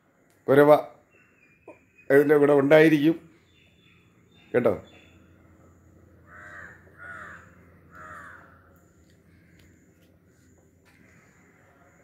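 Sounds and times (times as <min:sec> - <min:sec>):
bird calling: 0:01.0 - 0:11.8.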